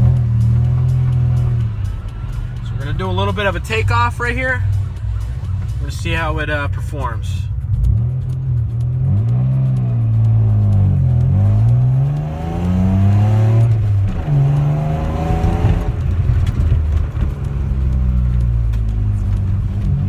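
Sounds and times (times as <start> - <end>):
car engine accelerating hard: 0.0 - 3.4, 7.5 - 20.0.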